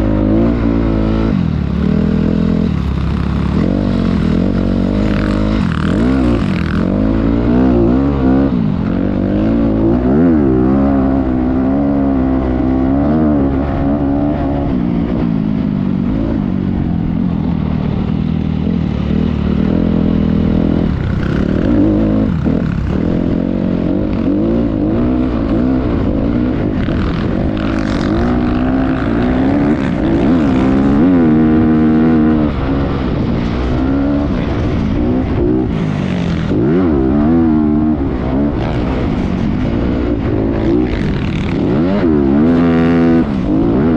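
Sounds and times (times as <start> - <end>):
motorbike engine revving: 0.0 - 43.9.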